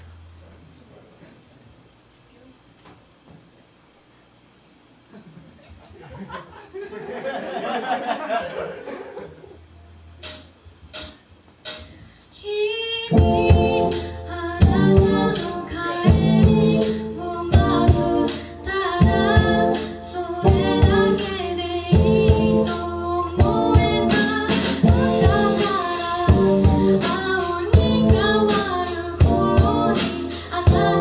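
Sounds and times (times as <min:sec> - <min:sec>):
woman singing: 0:12.4 - 0:31.0
rock band playing: 0:13.1 - 0:31.0.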